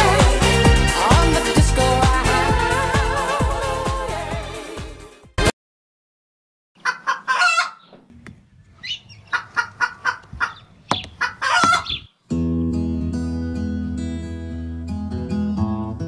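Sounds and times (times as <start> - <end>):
bird calling rapidly: 6.8 - 8.0, 8.7 - 12.2.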